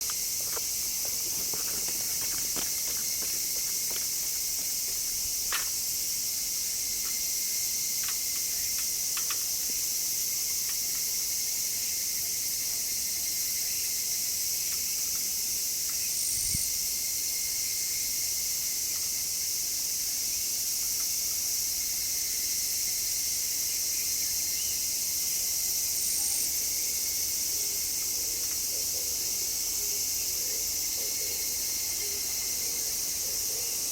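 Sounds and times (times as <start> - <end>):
high-pitched insect chorus: 0.0 - 33.9
faint ticks: 8.0 - 9.8.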